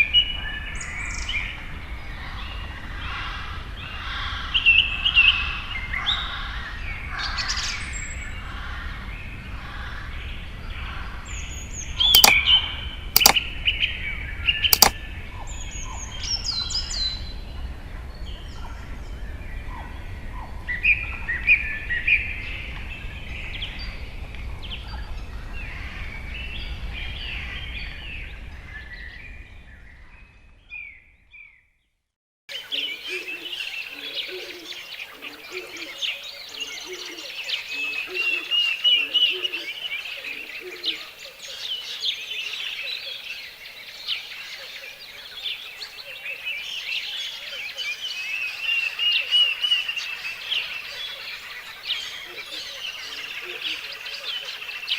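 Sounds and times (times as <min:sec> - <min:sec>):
sharp clicks: 0:12.2 - 0:12.4, 0:13.2 - 0:13.4, 0:14.8 - 0:15.0
songbirds chirping and trilling: 0:32.5 - 0:54.9.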